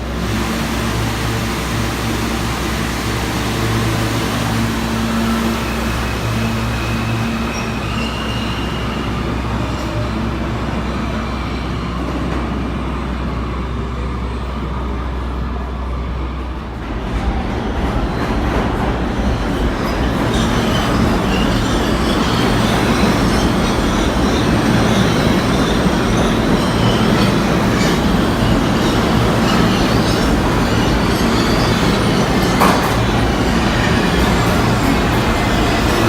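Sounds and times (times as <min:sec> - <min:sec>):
subway train wheels rumbling: 0:00.0 - 0:36.0
faint wheel squeal: 0:06.2 - 0:10.1.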